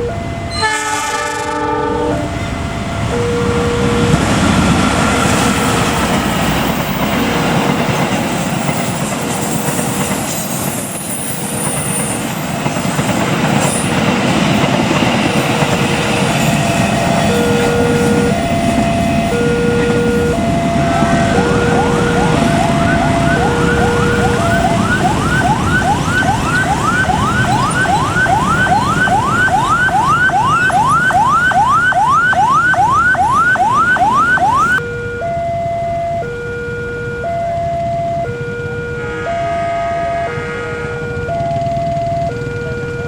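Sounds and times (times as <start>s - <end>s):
rising siren whoop: 0.0s - 7.4s, 16.2s - 43.0s
train passing: 0.0s - 36.4s
two-tone crossing alarm: 0.0s - 43.0s.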